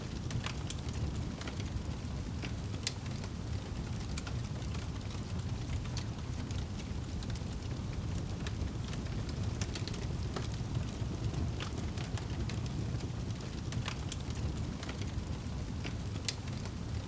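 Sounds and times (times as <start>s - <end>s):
low rumble of flame: 0.0s - 17.0s
wood fire crackling: 0.0s - 17.0s.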